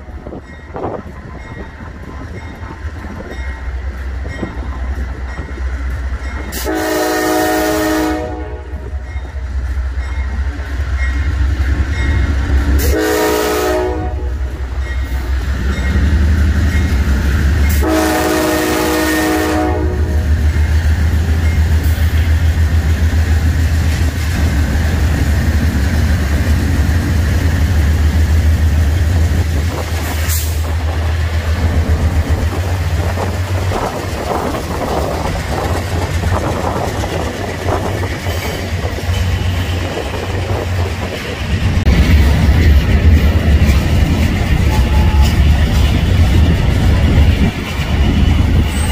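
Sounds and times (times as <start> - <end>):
locomotive engine rumble: 0.0 - 48.9
train horn: 6.5 - 9.0, 12.8 - 14.6, 17.7 - 20.4, 44.6 - 45.6
train wheels clattering: 8.8 - 48.9.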